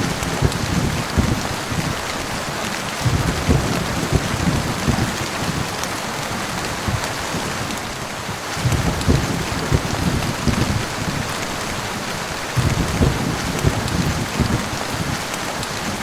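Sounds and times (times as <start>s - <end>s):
low thuds: 0.0s - 1.5s, 3.0s - 5.1s, 8.6s - 10.9s, 12.6s - 14.7s
heavy rain: 0.0s - 16.0s.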